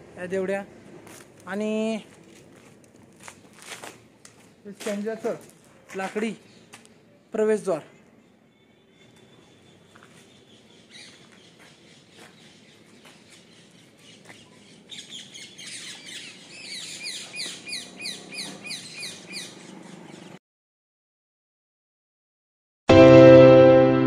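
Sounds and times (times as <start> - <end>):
small birds chirping: 4.3 - 20.4.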